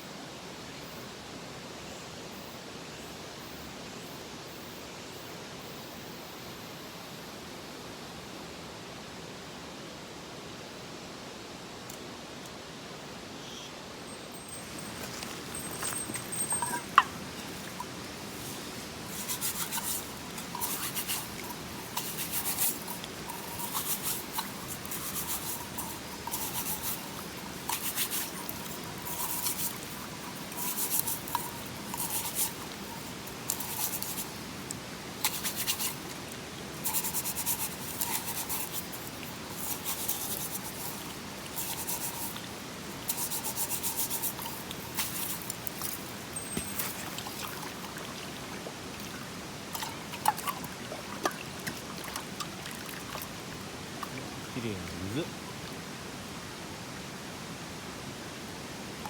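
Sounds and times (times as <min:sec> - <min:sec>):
mountain stream rushing: 0:14.4 - 0:59.0
scratchy scraping strokes: 0:14.8 - 0:47.5.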